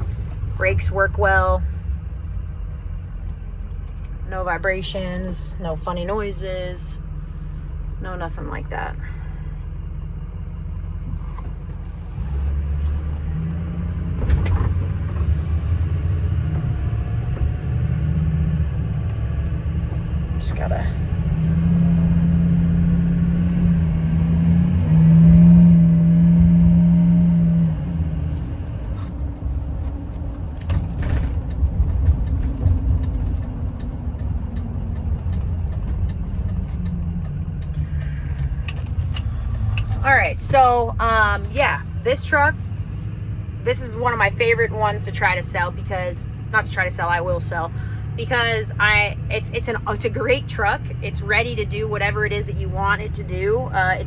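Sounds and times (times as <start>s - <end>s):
diesel truck engine rumble: 0.0s - 54.0s
road noise: 0.0s - 54.0s.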